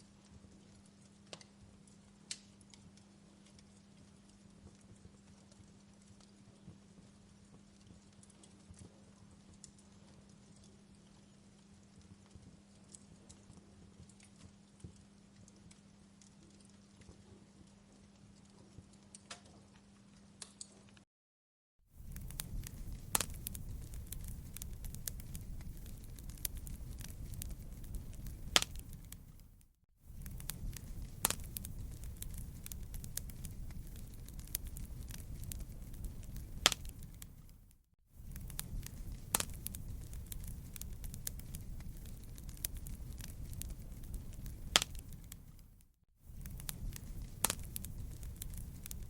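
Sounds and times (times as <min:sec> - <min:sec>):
fire crackling and popping: 0:00.2 - 0:19.5, 0:21.9 - 0:49.0
fire rumbling: 0:21.9 - 0:49.0.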